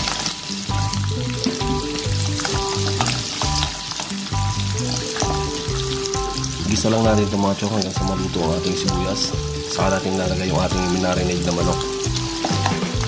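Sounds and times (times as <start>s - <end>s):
background music with steady beat: 0.0s - 13.0s
onions sizzling in hot oil: 0.0s - 13.0s.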